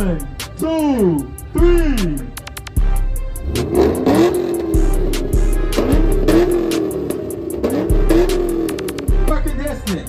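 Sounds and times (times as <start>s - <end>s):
hip-hop beat with heavy bass: 0.0s - 10.0s
car engine revving: 3.0s - 10.0s.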